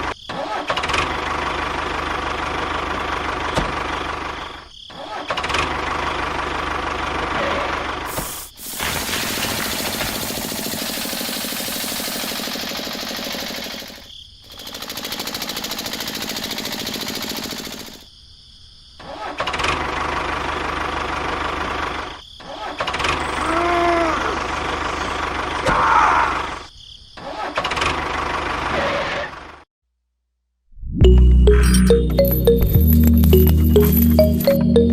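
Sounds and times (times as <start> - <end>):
small motor running: 8.8 - 18.0.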